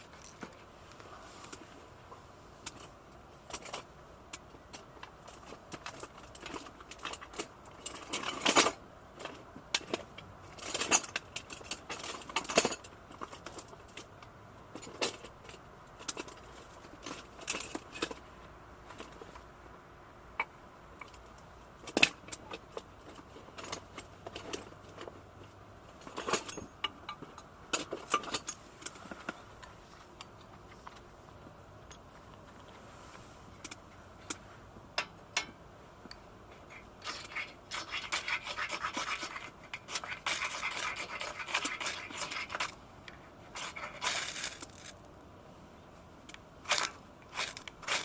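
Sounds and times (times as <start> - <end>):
metallic clinks and knocks: 10.6 - 14.1, 26.0 - 29.4.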